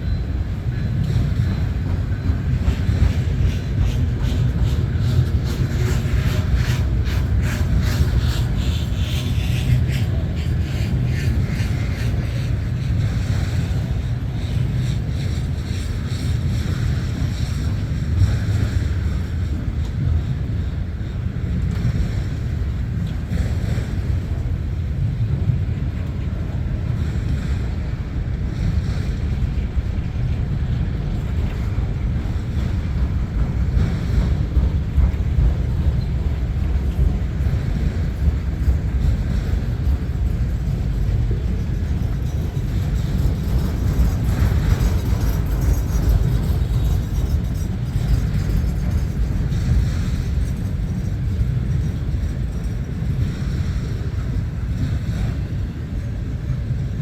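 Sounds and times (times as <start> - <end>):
freight train rumbling past: 0.0 - 57.0
wind buffeting microphone: 0.0 - 57.0.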